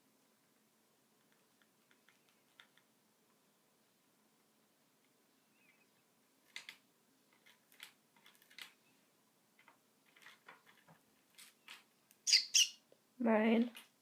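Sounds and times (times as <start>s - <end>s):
budgie pecking and tapping: 1.2s - 3.4s, 6.4s - 8.8s.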